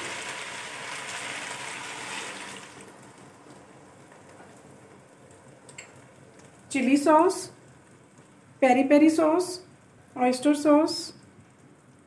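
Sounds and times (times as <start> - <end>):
food sizzling in a wok: 0.0 - 2.8.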